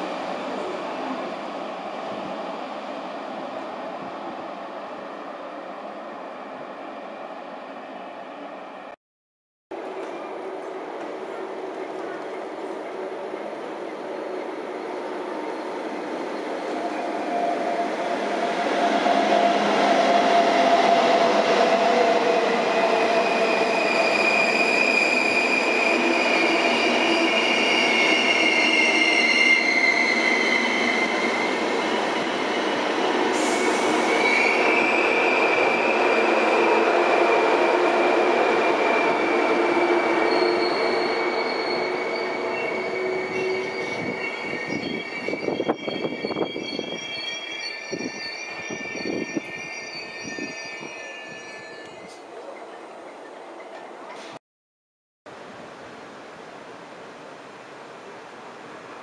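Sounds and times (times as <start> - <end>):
train rolling past: 9.8 - 54.4
brake squeals: 40.2 - 52.2.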